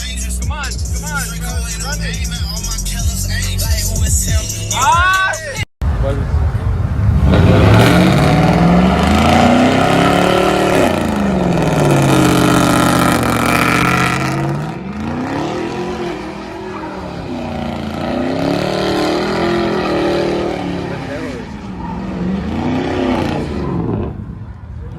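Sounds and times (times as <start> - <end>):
car engine revving: 5.9 - 24.4.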